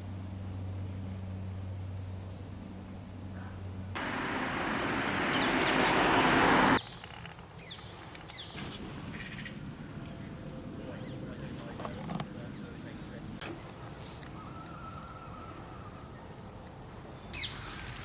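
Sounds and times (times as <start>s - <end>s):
loud rushing noise: 4.0s - 6.8s
birds chirping: 4.0s - 8.6s.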